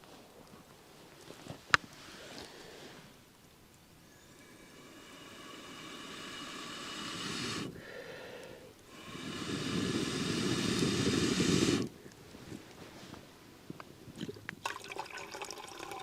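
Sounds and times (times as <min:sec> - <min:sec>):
person blowing onto fire: 0:04.3 - 0:12.1.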